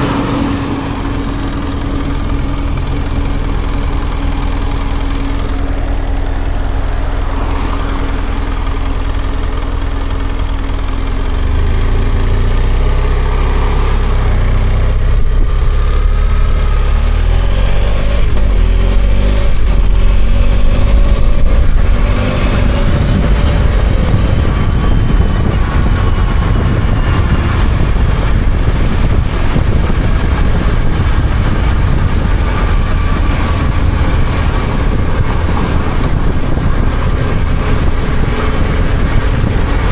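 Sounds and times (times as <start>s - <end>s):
motorcycle engine revving: 0.0s - 39.9s
road noise: 0.0s - 39.9s
wind noise: 0.0s - 39.9s.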